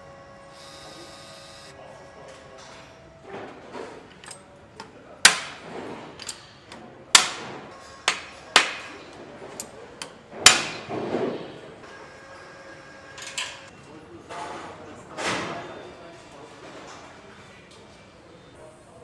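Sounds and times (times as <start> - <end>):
tools knocking and clanking: 3.3 - 11.5.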